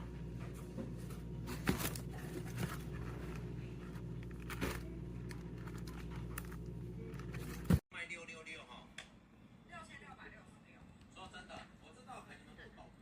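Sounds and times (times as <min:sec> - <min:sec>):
low hum: 0:00.0 - 0:07.8
rustling and crinkling: 0:00.2 - 0:07.8.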